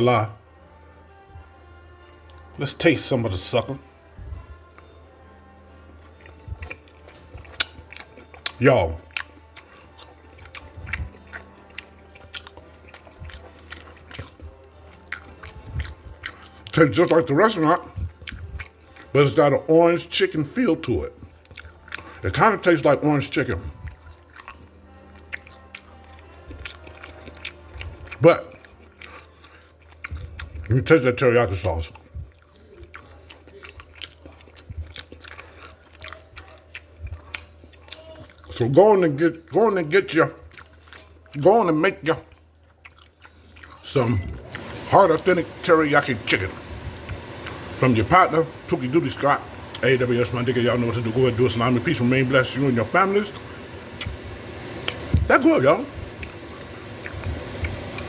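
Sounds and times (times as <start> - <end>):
person chewing food: 0.8 - 2.5, 3.9 - 19.5, 20.8 - 22.3, 23.4 - 38.8, 39.4 - 47.8, 48.5 - 58.0
wet mouth clicks and smacks: 6.1 - 16.7, 18.0 - 19.1.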